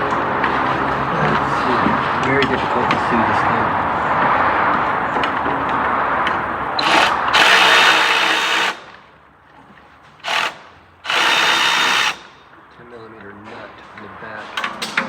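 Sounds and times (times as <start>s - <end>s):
steady rushing noise: 0.0s - 8.3s
cordless power tool spinning: 6.8s - 8.9s, 10.2s - 12.4s.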